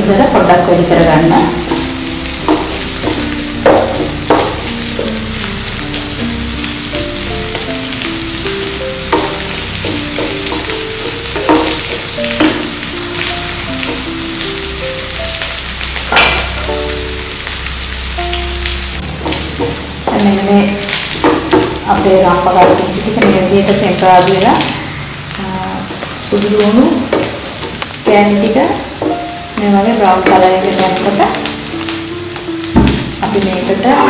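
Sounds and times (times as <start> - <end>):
food sizzling in oil: 0.0 - 34.0
soft background melody: 0.0 - 34.0
wooden spoon knocking on pan: 1.4 - 5.4, 6.6 - 14.5, 16.1 - 17.0, 19.0 - 24.7, 26.9 - 34.0.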